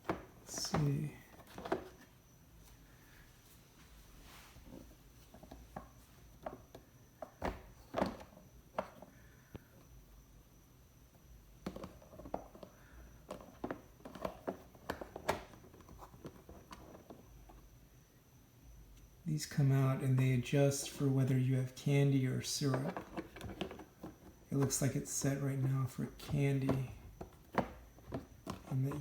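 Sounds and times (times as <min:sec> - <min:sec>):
plastic parts clicking and knocking: 0:00.0 - 0:02.1, 0:05.3 - 0:09.7, 0:11.6 - 0:17.6, 0:22.6 - 0:29.0.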